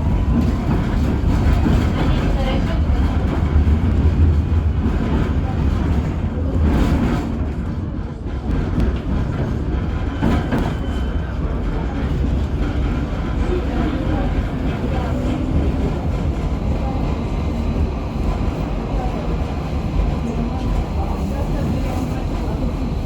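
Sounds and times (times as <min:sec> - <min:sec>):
tram wheels rumbling on rail: 0:00.0 - 0:23.0.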